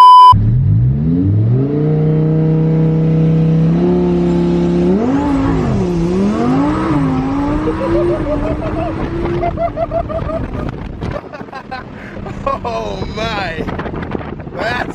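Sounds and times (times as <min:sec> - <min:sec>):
car engine revving: 0:00.4 - 0:11.0.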